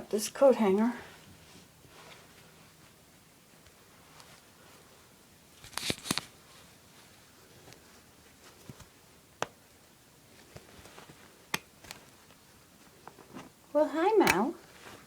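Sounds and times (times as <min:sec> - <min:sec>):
wire hanger metal clicks: 0:14.2 - 0:14.5.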